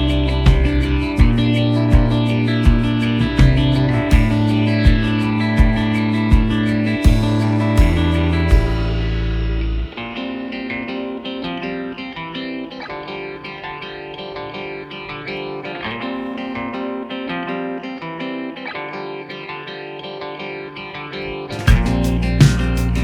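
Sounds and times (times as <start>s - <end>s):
heavy bass and sharp beats: 0.0s - 9.9s, 21.6s - 23.0s
plucked guitar melody: 0.0s - 23.0s.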